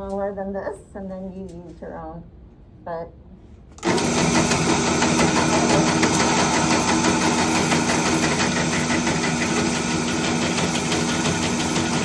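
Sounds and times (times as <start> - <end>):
drill press motor humming: 3.8 - 12.0.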